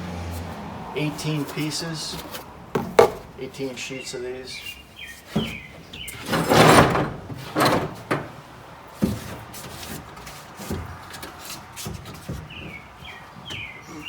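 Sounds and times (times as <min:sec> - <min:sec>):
soft knocks: 0:02.1 - 0:03.4.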